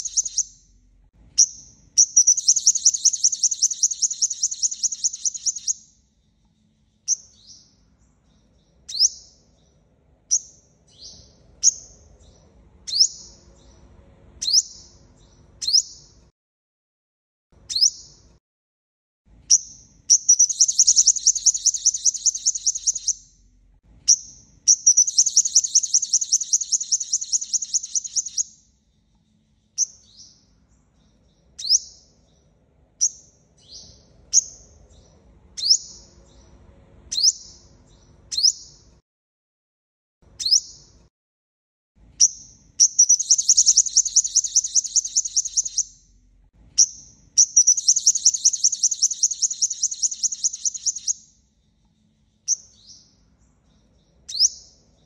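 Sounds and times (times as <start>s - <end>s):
sunbird singing high trills: 0.0s - 0.7s, 1.4s - 6.0s, 7.0s - 9.4s, 14.4s - 16.1s, 17.7s - 18.2s, 19.5s - 23.4s, 24.1s - 28.7s, 37.1s - 38.8s, 42.2s - 46.1s, 46.8s - 51.4s, 52.4s - 55.0s.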